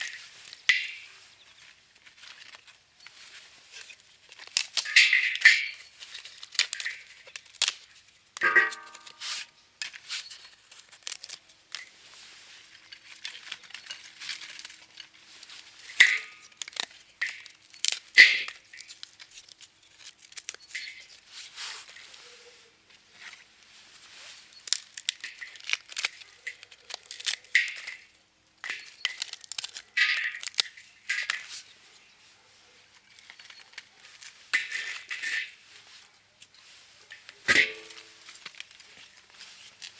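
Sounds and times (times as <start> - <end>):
firewood cracking and snapping: 0.0 - 11.9, 12.7 - 21.3, 24.5 - 31.7, 37.1 - 39.9.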